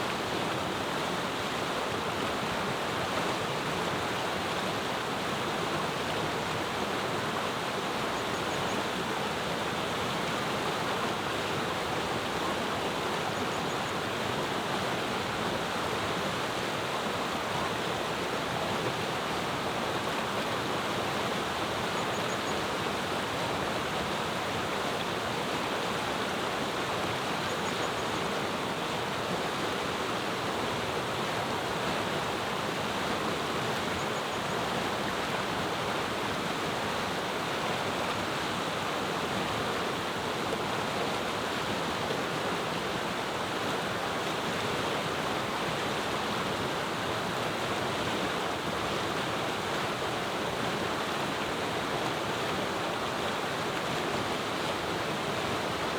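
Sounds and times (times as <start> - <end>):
river rushing over stones: 14.0 - 27.5, 28.1 - 55.9.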